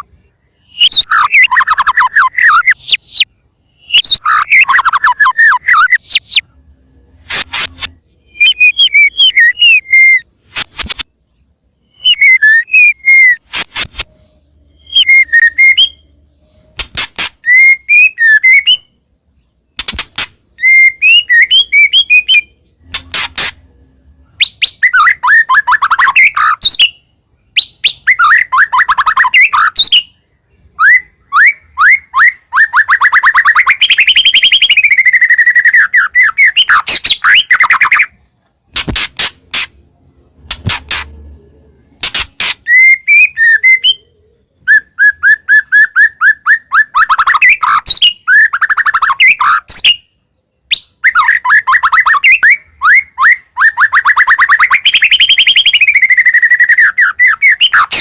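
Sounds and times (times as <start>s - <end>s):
bird singing whistled phrases: 0.0s - 6.5s, 7.1s - 10.3s, 11.8s - 13.4s, 14.0s - 16.8s, 17.4s - 19.0s, 20.5s - 23.2s, 24.3s - 38.2s, 40.4s - 50.1s, 50.7s - 58.0s
bird clicks: 16.8s - 17.4s, 19.8s - 20.4s, 38.2s - 39.7s.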